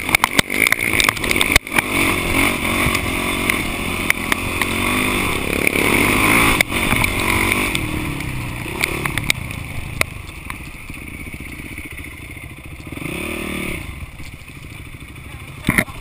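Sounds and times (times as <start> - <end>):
sharp clicks: 0.0 - 1.9, 6.5 - 13.0
off-road motorcycle engine revving: 0.0 - 16.0.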